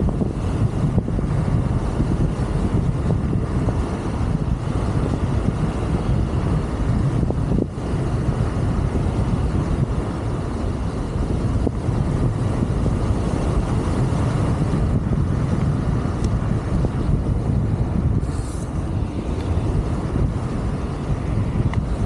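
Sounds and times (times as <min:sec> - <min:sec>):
scooter road noise: 0:00.0 - 0:22.0
wind buffeting microphone: 0:00.0 - 0:22.0
short hiss: 0:18.2 - 0:18.8.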